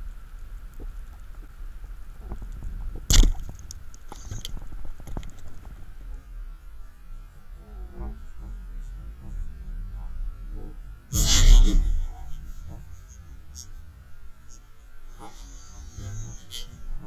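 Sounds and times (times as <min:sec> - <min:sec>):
low underwater rumble: 0:00.0 - 0:17.0
underwater clicks and crackles: 0:00.2 - 0:06.2.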